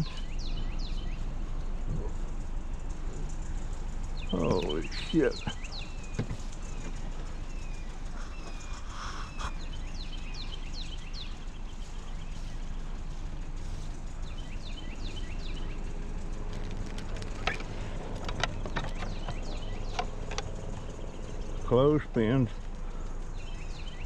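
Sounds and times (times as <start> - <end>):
small birds chirping: 0.0 - 24.0
steady low rumble: 0.0 - 24.0
sharp knocks and clicks: 6.0 - 7.1, 16.4 - 21.0.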